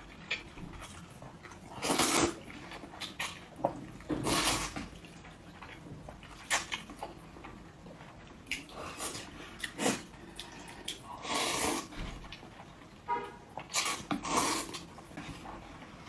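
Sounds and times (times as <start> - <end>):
noisy slurp: 1.5 - 5.1, 8.5 - 12.1, 13.7 - 15.4.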